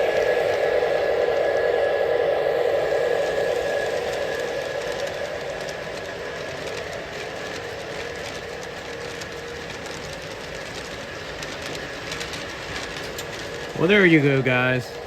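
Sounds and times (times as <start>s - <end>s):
model train rolling hum: 0.0s - 15.0s
wheels clicking over rail joints: 3.2s - 15.0s.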